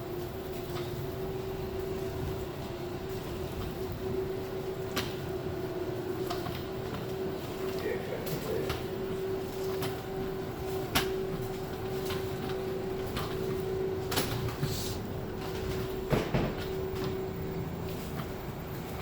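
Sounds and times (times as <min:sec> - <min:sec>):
subway train humming: 0:00.0 - 0:19.0
train knocks and rattles: 0:00.0 - 0:19.0.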